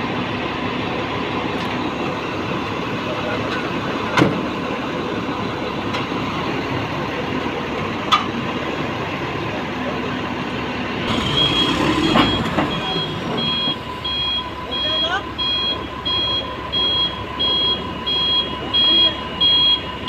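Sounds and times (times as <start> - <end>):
heavy construction machinery running: 0.0 - 20.0
vehicle reversing alarm beeping: 11.1 - 20.0.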